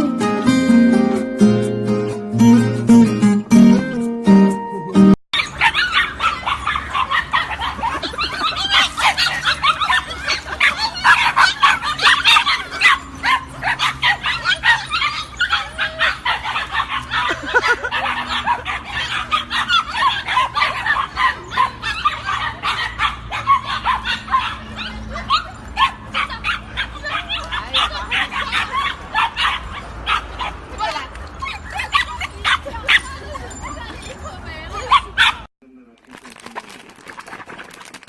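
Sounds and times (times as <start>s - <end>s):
dog yipping and barking: 5.4s - 35.5s.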